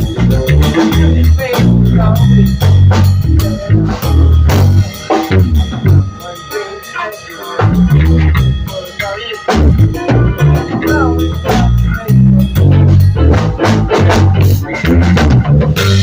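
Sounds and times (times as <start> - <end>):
bass line: 0.0 - 6.8, 7.6 - 16.0
drum kit beat: 0.0 - 16.0.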